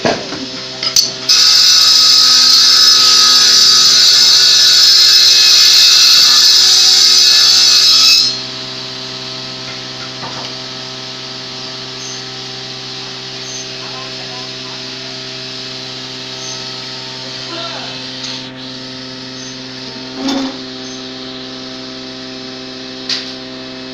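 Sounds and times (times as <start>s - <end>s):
power tool running on wood: 0.0s - 23.9s.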